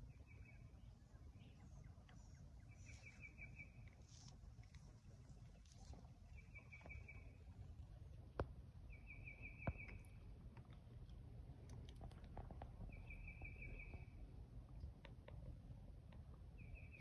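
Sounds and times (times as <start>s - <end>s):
faint bird chirps: 0.0s - 7.6s, 8.9s - 10.3s, 12.9s - 14.3s, 16.5s - 17.0s
faint low rumble: 0.0s - 17.0s.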